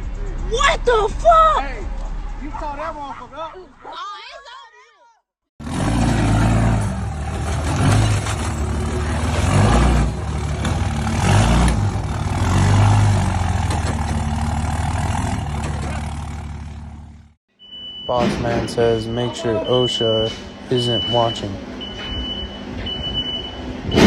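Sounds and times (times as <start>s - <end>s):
truck engine running: 5.6s - 17.4s.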